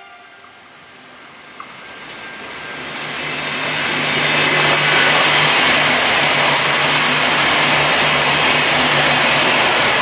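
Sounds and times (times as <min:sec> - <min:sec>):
wheels rushing on rail: 0:00.0 - 0:10.0.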